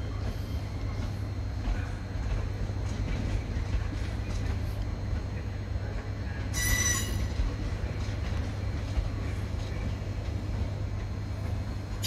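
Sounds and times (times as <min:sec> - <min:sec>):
train rumbling slowly: 0:00.0 - 0:12.0
train wheels squealing: 0:06.5 - 0:07.4.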